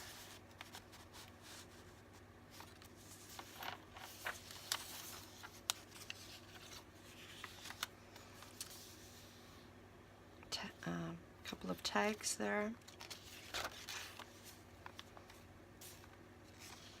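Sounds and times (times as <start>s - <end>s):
paper pages rustling: 0.0s - 9.3s, 12.8s - 17.0s.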